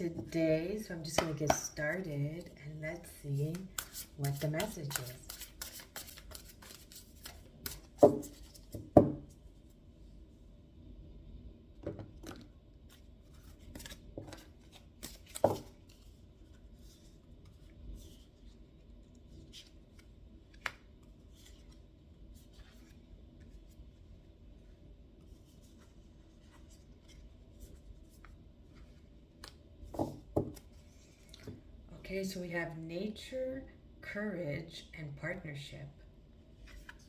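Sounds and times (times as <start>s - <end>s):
light rustling of cards: 1.1s - 9.8s, 12.4s - 31.7s, 36.5s - 37.0s
cards shuffling and snapping: 3.6s - 8.7s, 13.6s - 16.1s.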